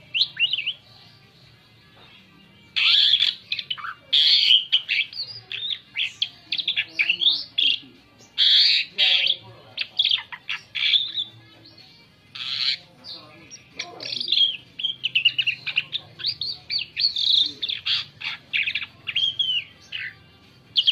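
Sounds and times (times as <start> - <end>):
bird harsh rasping bursts: 12.3 - 12.8.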